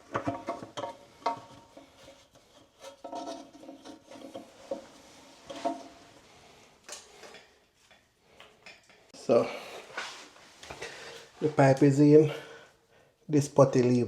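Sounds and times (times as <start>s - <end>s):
clicks and knocks of parts: 0.0s - 4.9s, 6.8s - 9.1s
scraping and rubbing: 0.0s - 6.7s.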